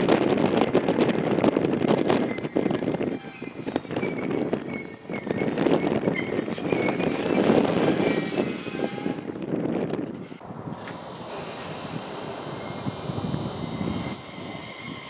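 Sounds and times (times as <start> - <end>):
train wheels rumbling on rails: 0.0 - 15.0
high squeal of brakes: 1.4 - 9.4, 11.3 - 15.0.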